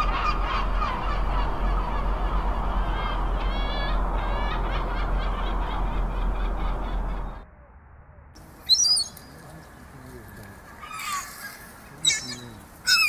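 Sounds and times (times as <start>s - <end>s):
birds calling: 0.0s - 7.4s, 8.4s - 13.0s
low electrical hum: 0.0s - 13.0s
loud high chirp: 8.6s - 9.4s.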